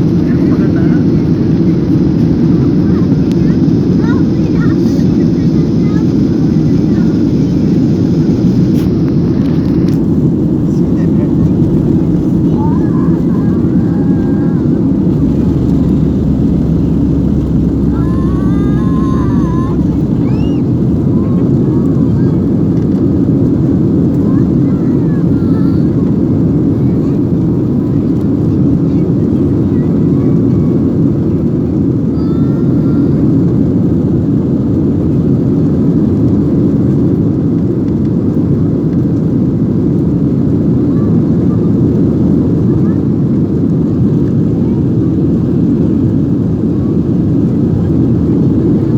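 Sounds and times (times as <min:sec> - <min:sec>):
airliner engines rumbling: 0:00.0 - 0:48.9.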